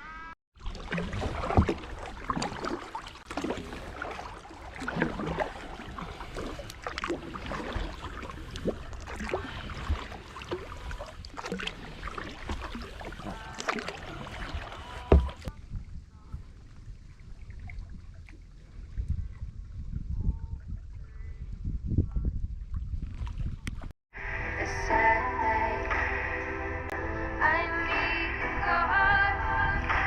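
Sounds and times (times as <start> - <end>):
paddle splashing in water: 0.6 - 19.5.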